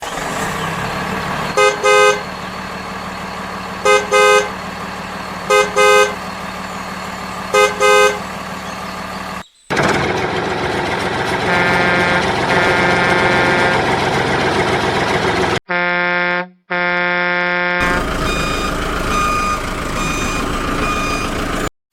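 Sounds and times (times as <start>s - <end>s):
engine hum: 0.0s - 21.7s
vehicle horn toots: 1.5s - 2.5s, 3.8s - 6.3s, 7.5s - 8.4s, 11.4s - 13.9s, 15.7s - 20.1s.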